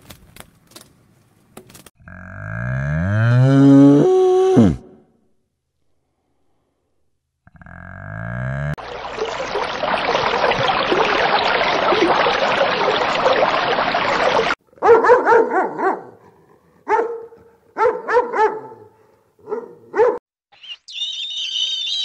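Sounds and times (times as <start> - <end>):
underwater rushing noise: 8.8 - 14.6
dog barking: 14.7 - 20.2.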